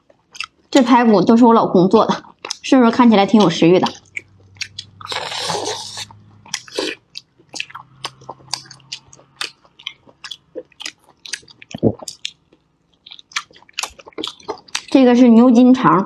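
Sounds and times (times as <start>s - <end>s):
people chewing meat: 0.0s - 0.8s, 2.2s - 2.7s, 3.3s - 15.0s
meat tearing bite: 4.0s - 12.4s
wet smacks and clicks: 5.9s - 15.0s.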